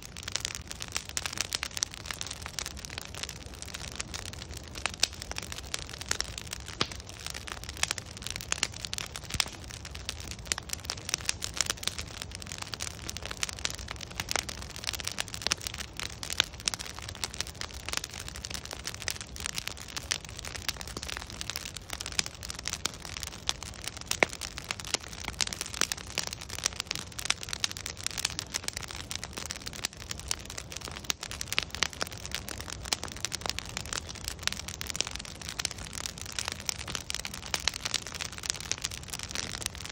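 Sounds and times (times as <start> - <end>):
burning logs popping and snapping: 0.0 - 39.9
low rumble of flames: 0.0 - 39.9.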